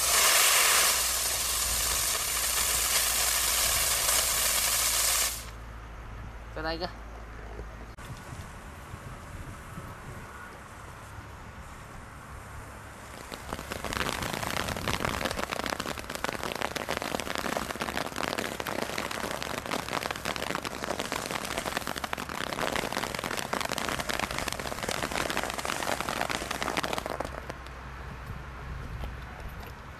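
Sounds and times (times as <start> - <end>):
firework crackling: 0.0 - 5.6, 12.9 - 27.8.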